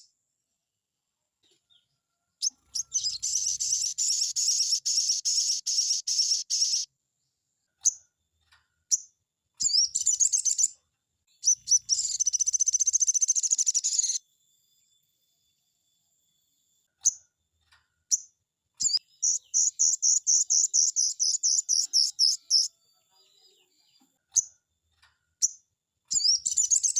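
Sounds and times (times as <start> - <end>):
bird chirps: 1.4 - 6.9, 8.9 - 14.2, 18.1 - 24.6, 25.4 - 26.9
bird singing trills: 1.7 - 6.9, 8.9 - 14.2, 18.1 - 24.6, 25.4 - 26.9.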